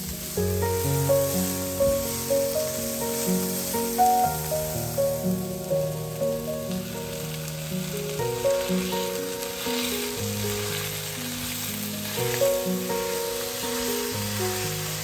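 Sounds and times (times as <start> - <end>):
background music: 0.0 - 15.0
meat sizzling in a frying pan: 0.0 - 15.0
wooden spatula stirring meat: 6.8 - 15.0.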